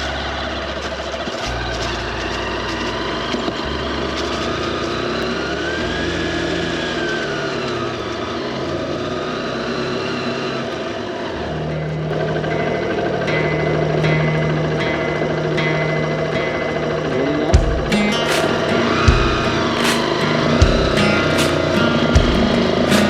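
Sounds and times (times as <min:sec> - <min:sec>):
motorcycle engine running: 0:00.0 - 0:23.0
background music: 0:11.6 - 0:23.0.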